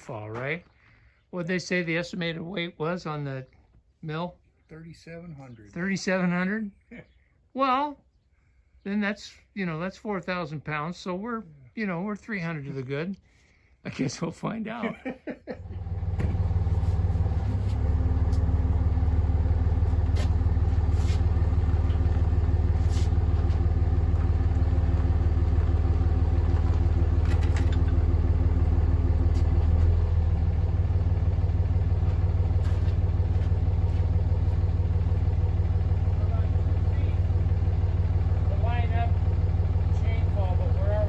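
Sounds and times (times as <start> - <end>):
engine running: 14.9 - 41.0.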